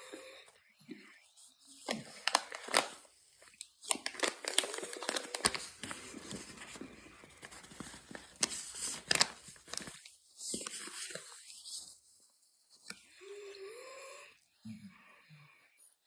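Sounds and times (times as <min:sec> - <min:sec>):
cornstarch crackling and crunching: 0:01.7 - 0:11.8.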